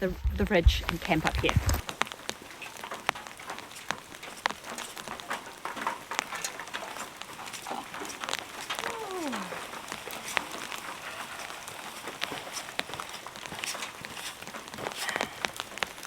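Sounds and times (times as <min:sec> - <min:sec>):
rain pattering on a tarp: 0:00.0 - 0:16.0
animal call falling in pitch: 0:08.7 - 0:11.3.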